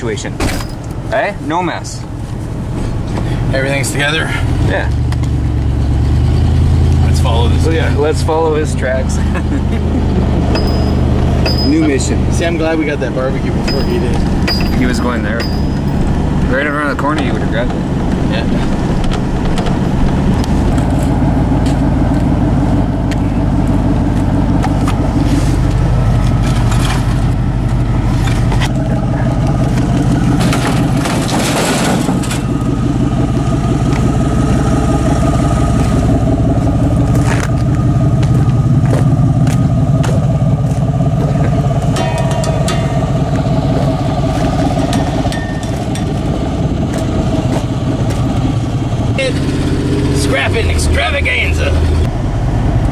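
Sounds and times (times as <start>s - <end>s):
vehicle engine and road hum: 0.0s - 52.9s
rattles and knocks: 10.3s - 12.3s, 13.6s - 22.3s, 23.0s - 32.8s, 37.1s - 48.6s.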